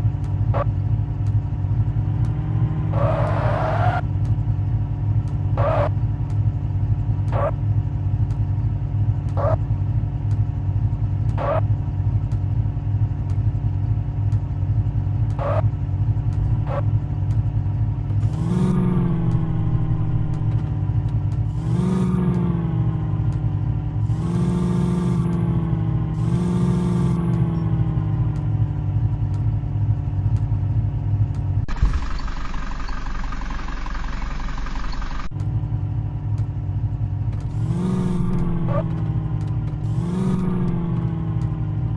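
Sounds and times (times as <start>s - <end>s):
tractor diesel engine revving: 14.9s - 41.9s.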